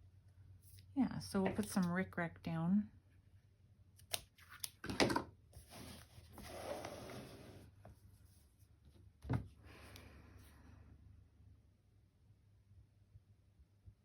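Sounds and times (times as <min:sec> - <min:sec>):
soft rustling of craft materials: 0:05.5 - 0:09.9.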